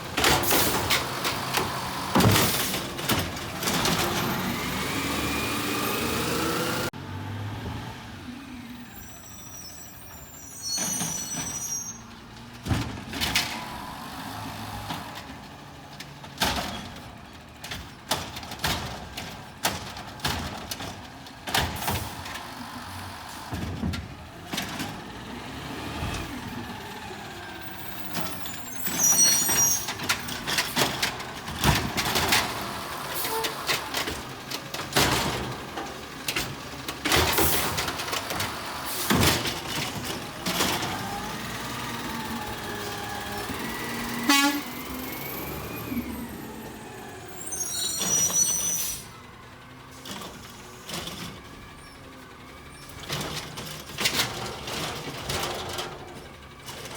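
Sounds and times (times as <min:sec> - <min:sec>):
garbage truck clanking and knocking: 0:00.0 - 0:06.9, 0:09.9 - 0:56.9
high air brake squeals: 0:08.8 - 0:12.2, 0:27.7 - 0:30.0, 0:44.2 - 0:49.2.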